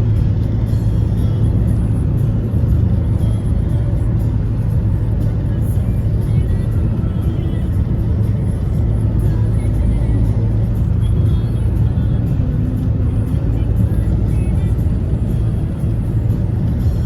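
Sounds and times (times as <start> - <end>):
music playing: 0.0 - 17.0
road vehicle rumble: 0.0 - 17.0.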